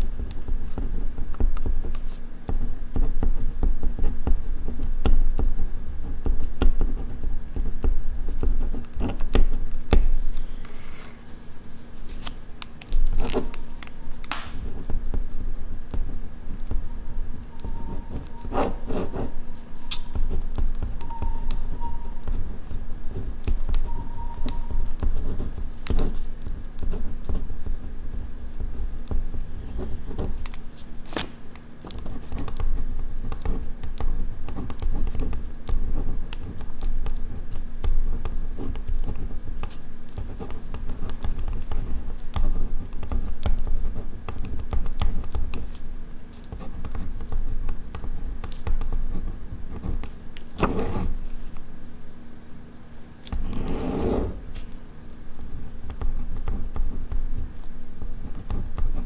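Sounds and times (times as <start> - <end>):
pen writing on paper: 17.4 - 22.4.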